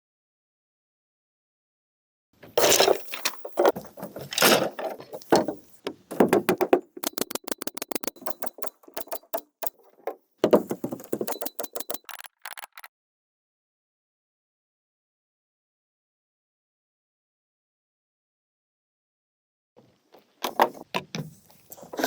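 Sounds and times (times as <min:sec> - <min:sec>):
hard objects clattering: 0:02.6 - 0:09.7, 0:10.4 - 0:12.9
rapid sharp clicks: 0:06.5 - 0:09.7, 0:10.9 - 0:12.9.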